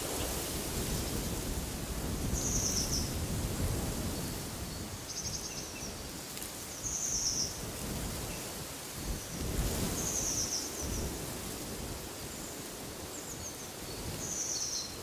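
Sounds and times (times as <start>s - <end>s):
wind blowing: 0.0s - 5.1s, 7.6s - 14.4s.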